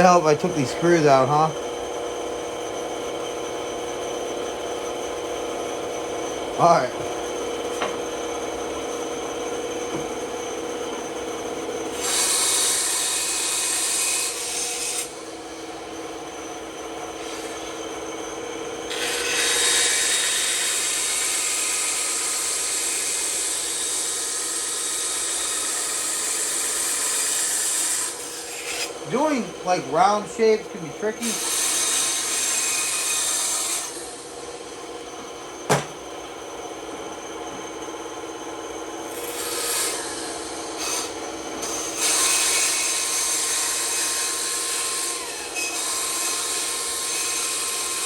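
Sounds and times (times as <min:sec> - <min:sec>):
bandsaw blade cutting wood: 0:00.0 - 0:01.6, 0:11.9 - 0:15.3, 0:18.9 - 0:36.1, 0:39.1 - 0:48.0
bandsaw humming: 0:00.0 - 0:48.0.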